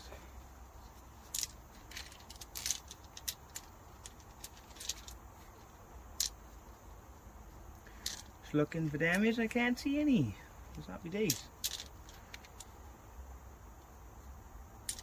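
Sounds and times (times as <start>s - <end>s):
metal rocker arms clinking: 1.2s - 6.4s, 8.0s - 9.6s, 11.2s - 12.7s.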